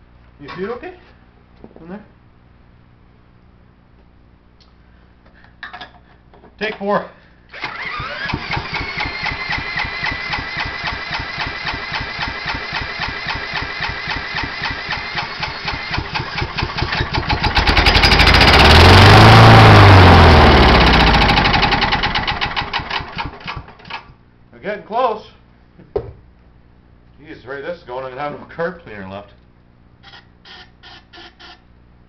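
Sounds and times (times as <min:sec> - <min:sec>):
electric drill whining: 0:07.5 - 0:21.9
engine chugging over: 0:07.8 - 0:23.7
engine running loudly: 0:15.1 - 0:22.4.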